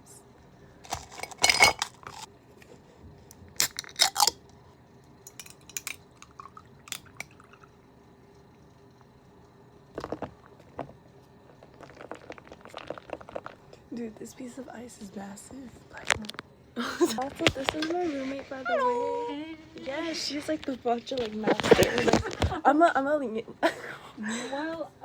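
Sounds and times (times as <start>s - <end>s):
ice cubes clinking in a glass: 0.9s - 2.3s, 5.3s - 7.4s.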